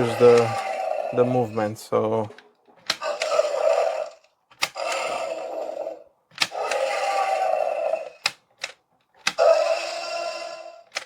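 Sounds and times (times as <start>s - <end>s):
toy mechanical click: 0.0s - 0.8s, 2.8s - 11.0s
toy dinosaur electronic roar: 0.0s - 1.5s, 3.0s - 8.4s, 9.3s - 11.0s.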